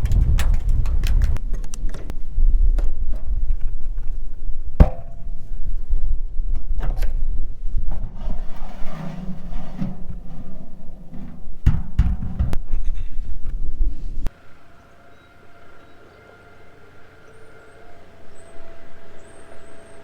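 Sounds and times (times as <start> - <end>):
wind rumble on microphone: 0.0 - 14.3
sharp knocks and bangs: 4.8 - 5.5, 11.0 - 12.7.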